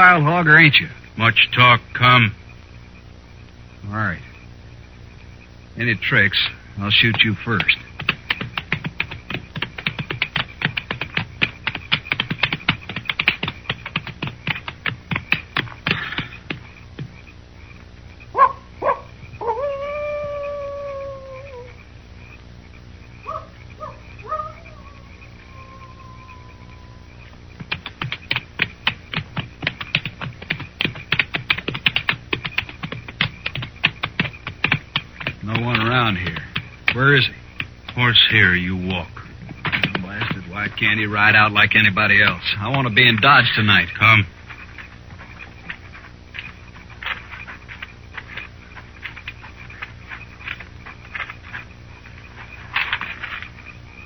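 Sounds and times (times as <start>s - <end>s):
night insects chirring: 0.0s - 54.0s
horse hooves clopping: 6.9s - 17.3s, 26.6s - 53.8s.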